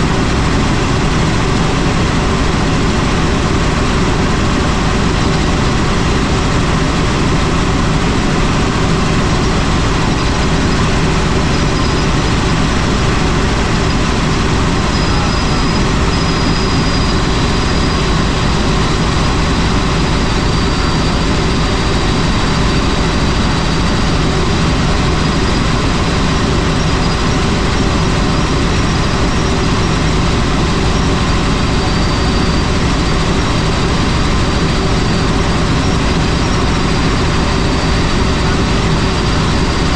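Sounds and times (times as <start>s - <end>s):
helicopter rotor and engine: 0.0s - 39.9s
faint high whine: 9.4s - 39.9s.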